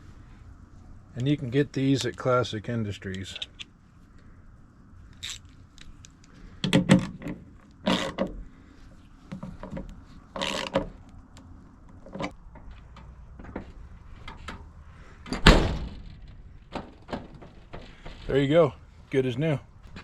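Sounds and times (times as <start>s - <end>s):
door latch clicks and clunks: 6.6s - 8.4s, 15.2s - 18.3s
truck door slamming: 15.2s - 18.3s.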